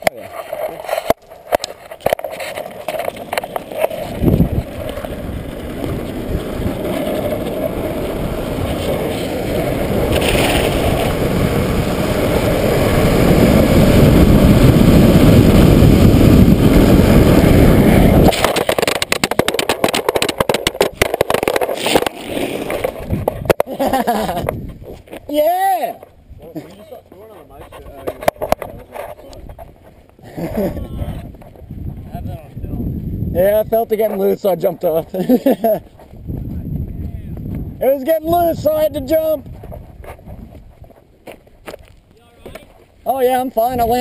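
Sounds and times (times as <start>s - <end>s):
scrapes and knocks of sliding: 0.0s - 11.1s, 18.3s - 23.7s, 27.1s - 30.1s
longboard wheels on asphalt: 0.0s - 44.0s
wind rush: 3.1s - 23.6s, 24.2s - 26.4s, 27.6s - 34.8s, 35.7s - 41.1s, 43.0s - 44.0s.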